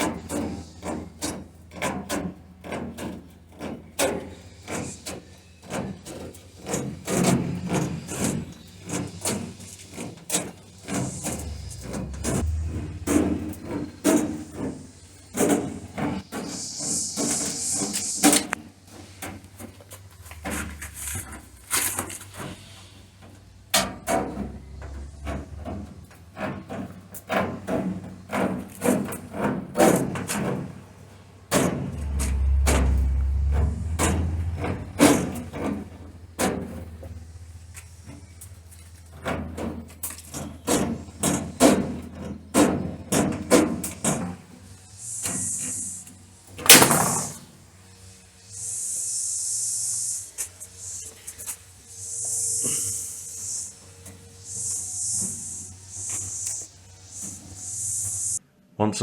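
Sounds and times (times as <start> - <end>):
metal panels knocking and scraping: 0.0 - 16.4, 18.2 - 37.4, 38.0 - 45.7, 46.5 - 47.6
short hiss: 15.0 - 19.6, 44.0 - 58.4
sharp knocks on metal: 46.7 - 47.4.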